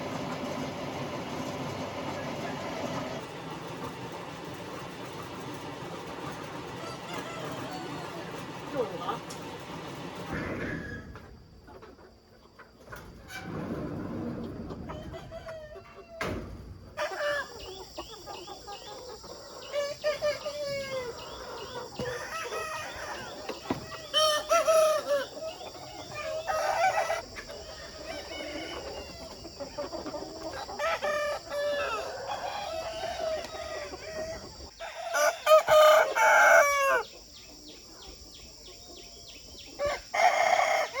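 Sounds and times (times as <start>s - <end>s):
chickens clucking: 0.0s - 41.0s
rooster crowing: 6.8s - 8.3s, 26.2s - 29.5s, 30.6s - 37.1s, 39.8s - 41.0s.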